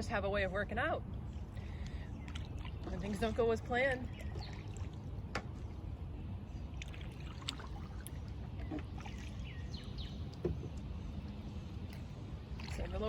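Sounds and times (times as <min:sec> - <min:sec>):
steady low rumble: 0:00.0 - 0:13.0
small water splashes: 0:01.0 - 0:13.0
water dripping off paddle: 0:01.2 - 0:03.5, 0:06.6 - 0:13.0.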